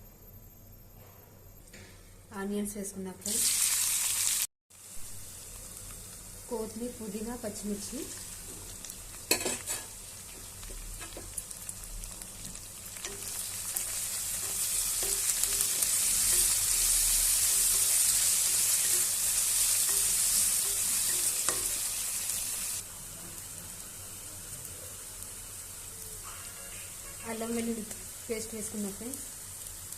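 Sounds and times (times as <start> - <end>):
vegetables sizzling in hot oil: 3.3 - 29.9
spoon stirring in pan: 8.4 - 11.5, 12.4 - 22.3.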